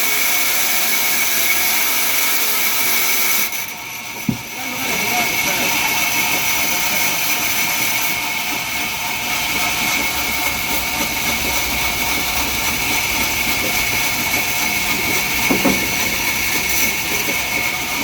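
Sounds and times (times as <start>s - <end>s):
sawmill saw cutting log: 0.0s - 18.0s
brief knock: 4.2s - 4.6s.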